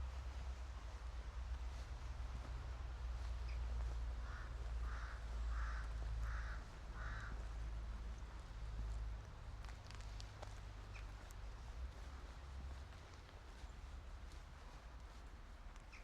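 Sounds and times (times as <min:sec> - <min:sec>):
low steady rumble: 0:00.0 - 0:16.0
crow cawing: 0:04.2 - 0:07.5.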